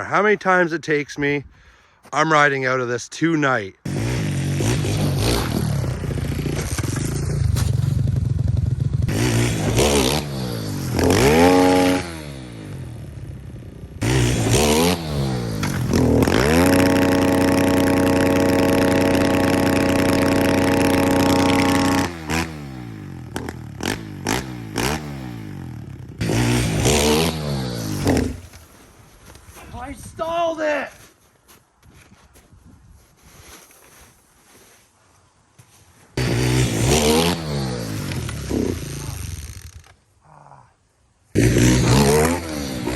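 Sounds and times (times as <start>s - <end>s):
motorcycle engine revving: 3.9s - 28.6s, 36.2s - 39.9s, 41.4s - 42.9s.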